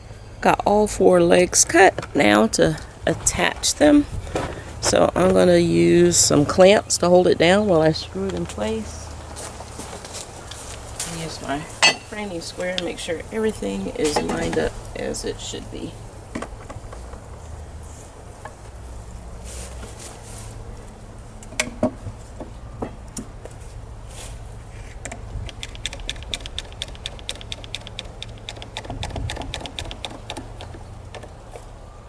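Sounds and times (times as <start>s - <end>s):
low steady hum: 0.0s - 32.0s
fast run of clicks: 25.0s - 31.7s.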